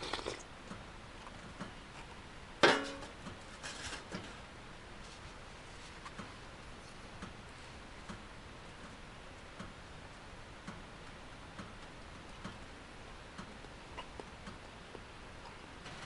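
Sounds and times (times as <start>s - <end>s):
wood stove ticking and crackling: 6.1s - 15.9s.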